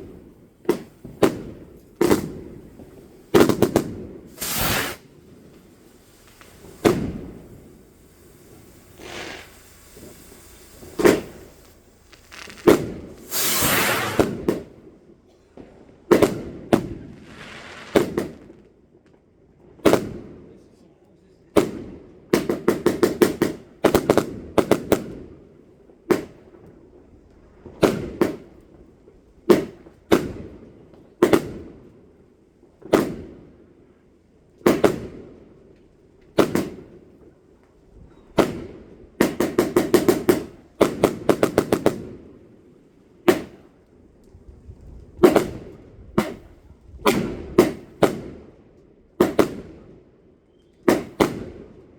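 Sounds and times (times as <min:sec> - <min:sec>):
fireworks bangs: 0:00.0 - 0:14.8, 0:16.1 - 0:18.7
rushing hiss: 0:02.6 - 0:14.5.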